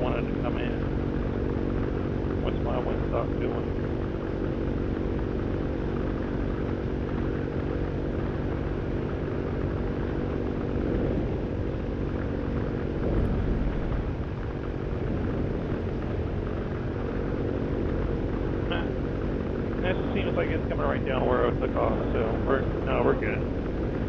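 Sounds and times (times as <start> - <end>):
paramotor engine and propeller: 0.0 - 24.0.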